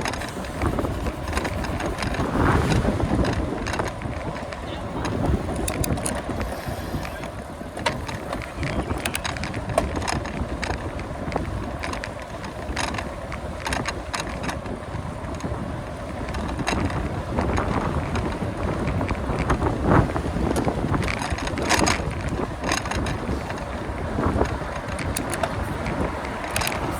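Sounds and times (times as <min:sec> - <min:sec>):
steady low rumble: 0:00.0 - 0:05.8
sharp clicks and rattles: 0:00.0 - 0:15.6, 0:16.2 - 0:26.9
wind buffeting microphone: 0:00.0 - 0:26.9.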